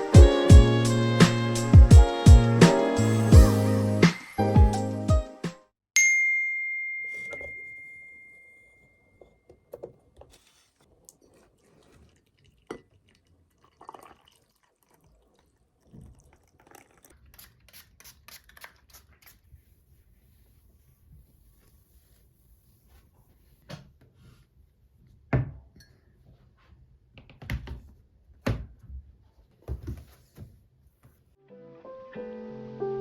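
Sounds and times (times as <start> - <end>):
background music: 0.0 - 5.7, 31.4 - 33.0
clear bell-like ding: 6.0 - 9.2.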